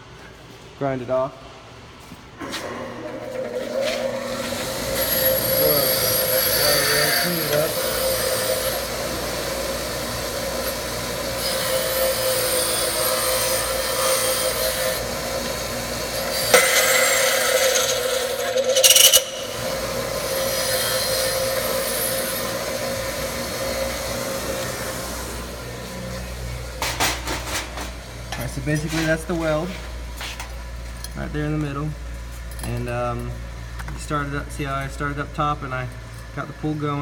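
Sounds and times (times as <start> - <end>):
bench grinder whine: 2.4 - 30.8
grinding wheel on steel: 2.7 - 29.1.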